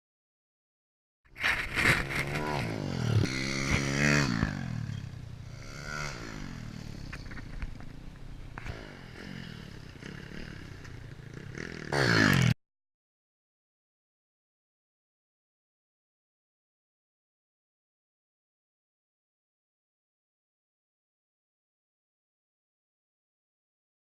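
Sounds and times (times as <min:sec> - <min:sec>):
rattling and scraping: 0:01.3 - 0:05.0
small motorbike engine revving: 0:01.4 - 0:12.6.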